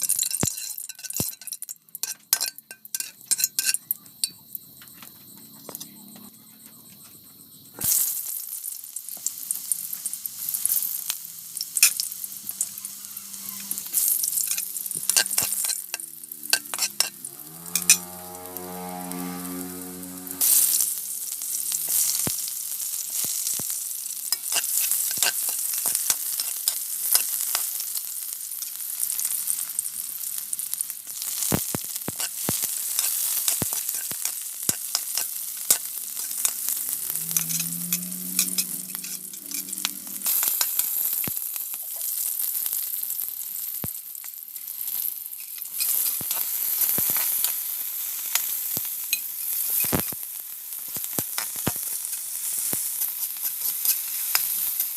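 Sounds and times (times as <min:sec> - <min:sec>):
spatula scraping pan: 0:00.0 - 0:03.8, 0:12.7 - 0:21.1, 0:24.3 - 0:27.8, 0:31.4 - 0:41.0, 0:45.4 - 0:47.6, 0:51.4 - 0:54.6
food sizzling in oil: 0:00.0 - 0:04.3, 0:07.8 - 0:54.9.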